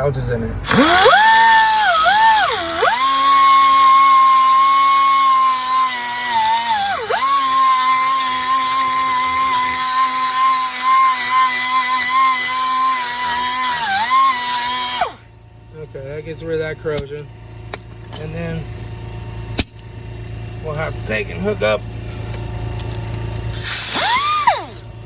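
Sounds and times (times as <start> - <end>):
air die grinder grinding metal: 0.6 - 15.5, 22.8 - 24.9.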